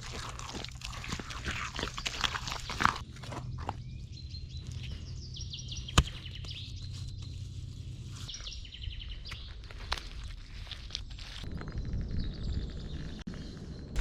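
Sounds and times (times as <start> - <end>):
small songbird singing: 1.5 - 7.5, 8.1 - 9.6.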